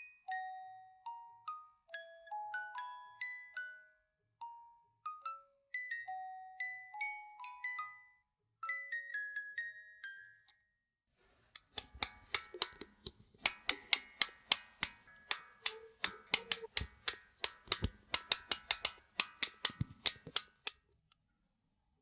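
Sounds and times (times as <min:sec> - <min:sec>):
clockwork ratchet clicking: 0:11.6 - 0:20.8.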